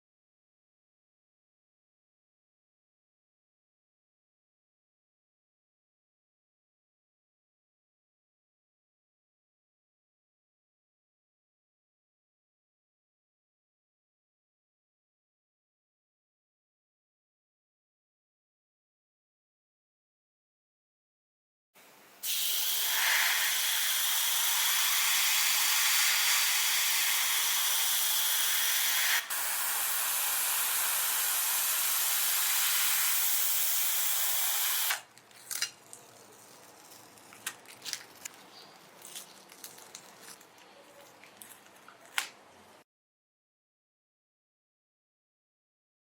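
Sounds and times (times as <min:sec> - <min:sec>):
spray paint hissing: 0:22.2 - 0:35.0.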